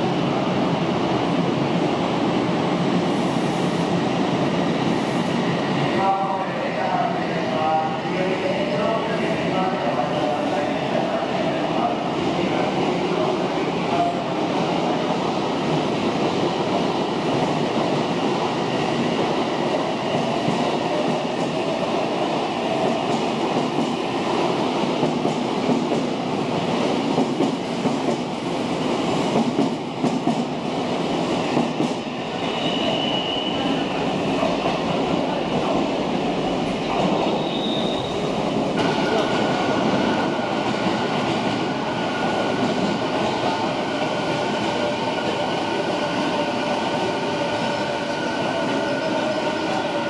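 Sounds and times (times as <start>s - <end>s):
electric train rumbling: 0.0s - 50.0s
high squeal: 32.4s - 33.9s, 37.2s - 38.3s.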